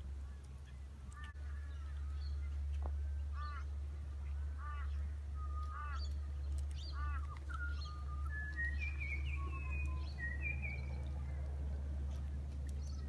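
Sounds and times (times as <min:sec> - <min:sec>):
steady low rumble: 0:00.0 - 0:13.0
harsh bird calls: 0:00.3 - 0:13.0
whistled bird notes: 0:06.8 - 0:11.4.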